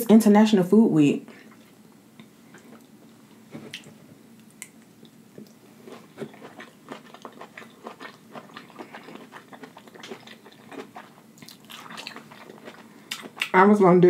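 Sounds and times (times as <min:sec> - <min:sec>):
person chewing with wet mouth clicks: 0:03.7 - 0:13.6.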